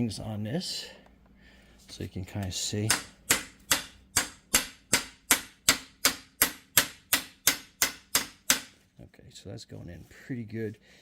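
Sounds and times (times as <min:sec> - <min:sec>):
hammer striking metal: 0:02.9 - 0:08.8.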